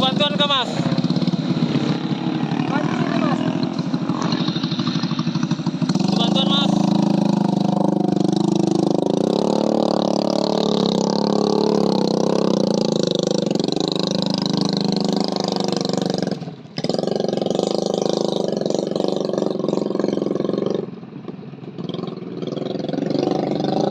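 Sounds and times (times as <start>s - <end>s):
vehicle engine running: 0.0s - 23.9s.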